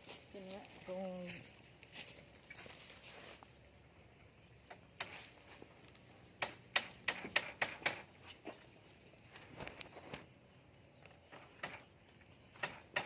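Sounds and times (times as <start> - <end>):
sharp knocks: 6.4 - 8.1, 12.6 - 13.0.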